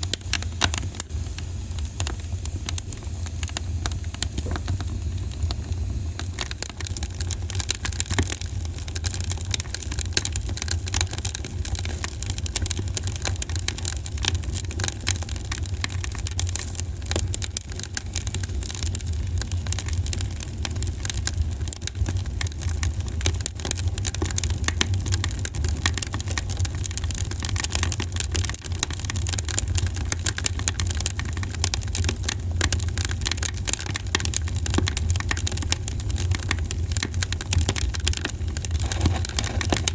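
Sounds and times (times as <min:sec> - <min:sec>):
campfire crackling: 0:00.1 - 0:39.9.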